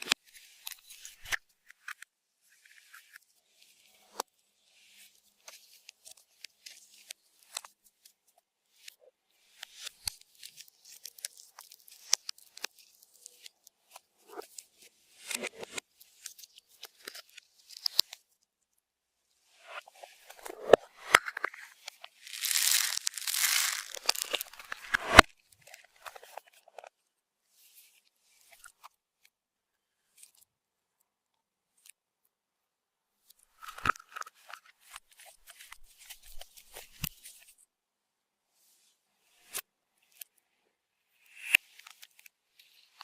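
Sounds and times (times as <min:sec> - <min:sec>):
slime kneaded by hand: 0:19.7 - 0:25.3
sticky crackles and popping clicks: 0:20.4 - 0:25.3.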